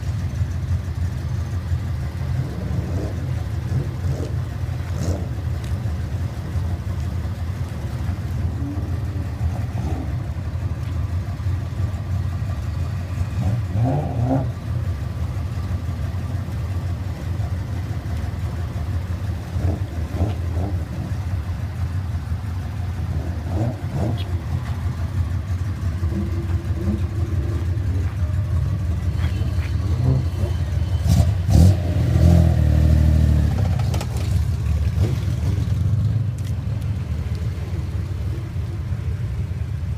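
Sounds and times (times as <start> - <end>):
car exhaust idling rumble: 0.0 - 31.5, 33.4 - 39.9
engine revving: 2.2 - 5.7, 8.4 - 10.4, 13.2 - 14.8, 19.5 - 21.4, 23.0 - 24.8, 29.0 - 36.5.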